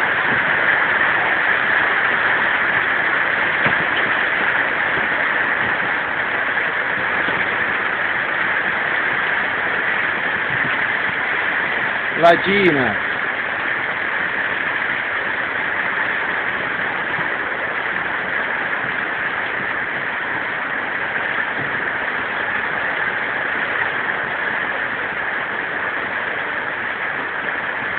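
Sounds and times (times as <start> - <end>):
heavy rain falling: 0.0 - 27.9.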